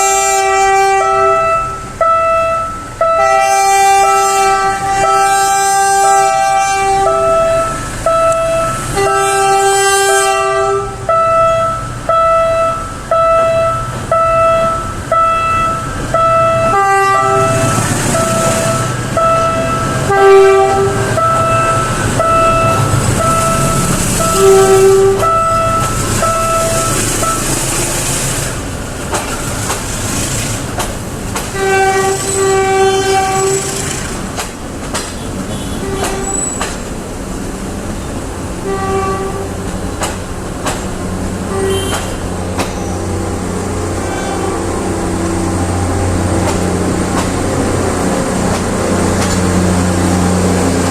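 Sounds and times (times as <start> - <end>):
train horn blasts: 0.0 - 27.9, 31.5 - 34.0, 35.3 - 36.6, 38.6 - 39.7, 41.5 - 46.9
train rumble and wheel clatter: 0.0 - 50.9.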